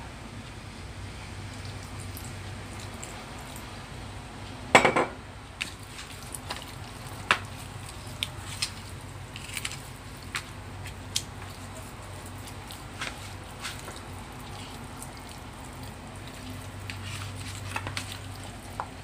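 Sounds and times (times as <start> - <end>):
wet squelches of meat: 5.6 - 19.0.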